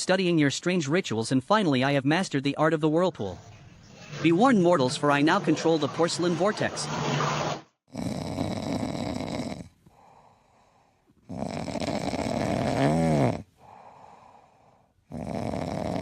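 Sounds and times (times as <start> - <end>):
person snoring: 7.9 - 16.0
quiet breaths: 8.2 - 16.0.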